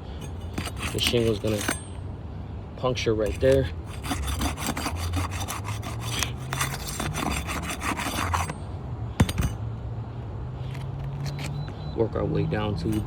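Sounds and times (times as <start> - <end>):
shingle scraping and tearing: 0.0 - 2.0, 3.2 - 8.6.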